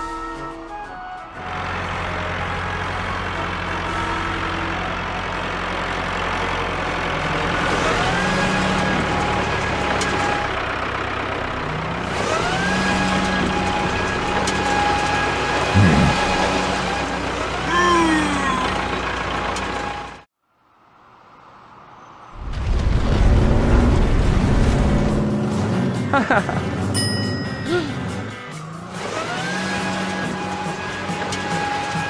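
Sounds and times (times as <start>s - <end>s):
cartoon truck engine effect: 1.4s - 20.2s, 27.5s - 32.0s.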